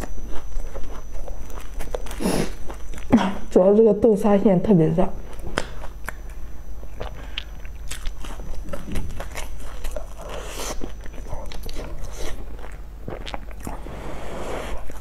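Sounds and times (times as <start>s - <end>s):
crunchy biting and chewing: 0.0s - 3.2s, 5.2s - 15.0s.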